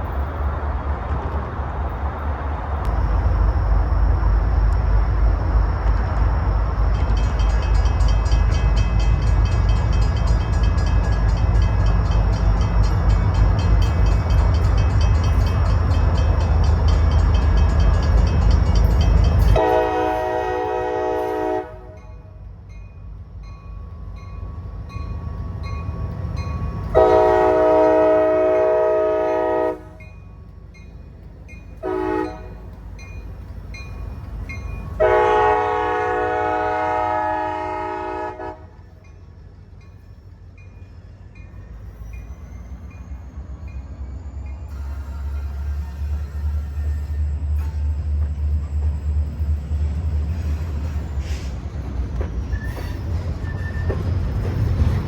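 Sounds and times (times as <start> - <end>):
diesel locomotive running: 0.0 - 55.0
locomotive horn blasts: 19.5 - 22.2, 26.9 - 30.0, 31.8 - 32.8, 35.0 - 38.8.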